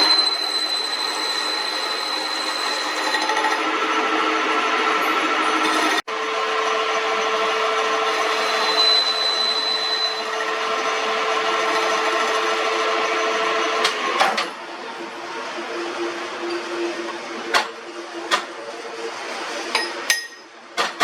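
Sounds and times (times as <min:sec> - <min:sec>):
high squeal: 0:00.0 - 0:06.0, 0:06.6 - 0:13.9
metal lathe running: 0:00.0 - 0:20.4
cutting tool scraping iron: 0:08.1 - 0:12.9.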